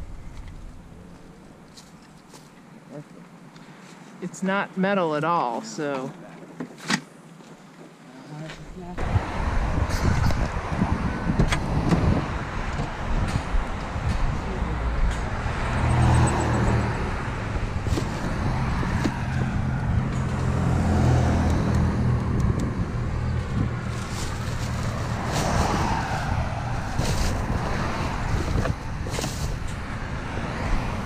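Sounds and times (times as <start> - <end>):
vehicle engine rumbling: 0.0 - 3.7, 8.4 - 31.0
plastic bag rustling: 23.8 - 29.7.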